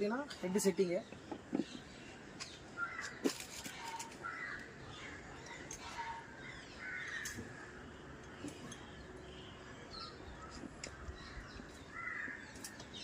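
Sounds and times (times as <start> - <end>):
bird cawing hoarsely: 4.2 - 4.8, 11.9 - 12.6.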